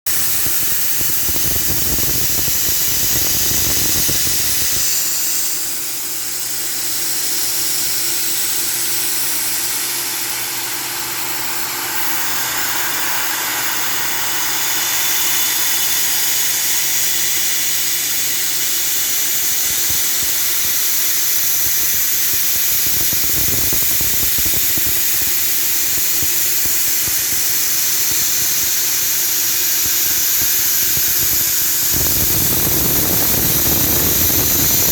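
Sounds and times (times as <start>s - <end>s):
milling machine hissing: 0.1s - 34.9s
low motor hum: 9.3s - 17.0s, 31.8s - 34.9s.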